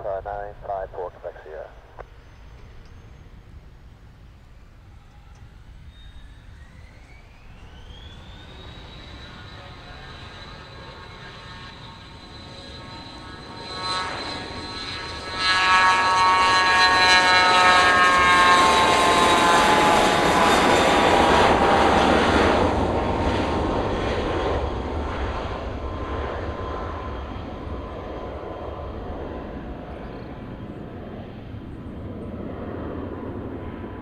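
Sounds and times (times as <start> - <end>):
jet engine roar: 0.0 - 34.0
jet whine falling in pitch: 4.8 - 31.5.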